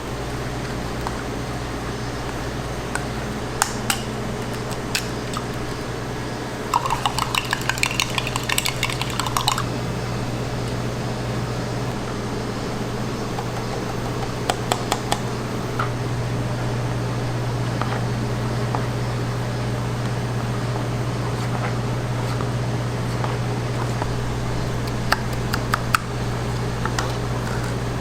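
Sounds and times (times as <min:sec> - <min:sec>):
kitchen equipment low hum: 0:00.0 - 0:28.0
utensils clicking and tapping: 0:06.7 - 0:09.7, 0:13.3 - 0:15.9, 0:24.8 - 0:27.8.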